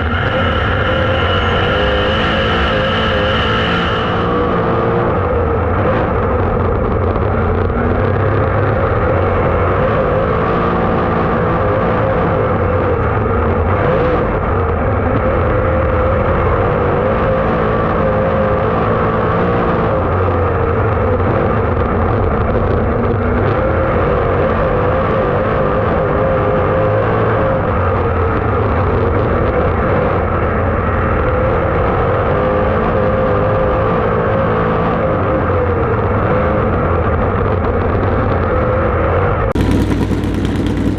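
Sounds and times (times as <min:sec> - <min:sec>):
race car engine running: 0:39.6 - 0:40.9.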